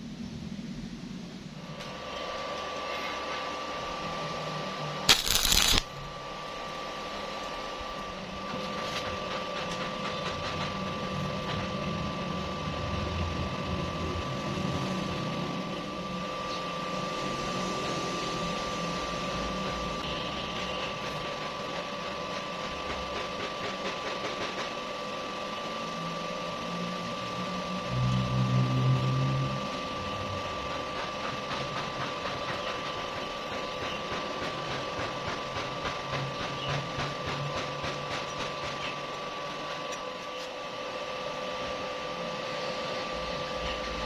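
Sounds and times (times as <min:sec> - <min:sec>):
two-tone machine hum: 0:01.4 - 0:23.2
arc welding crackle: 0:05.1 - 0:08.0.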